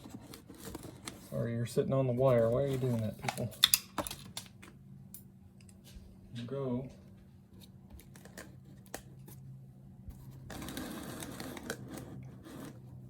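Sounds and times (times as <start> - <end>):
rustling handling noise: 0.0 - 4.7.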